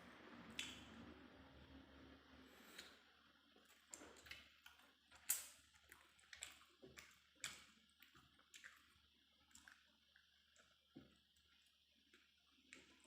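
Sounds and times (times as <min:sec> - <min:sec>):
person chewing with mouth clicks: 0:03.7 - 0:10.7.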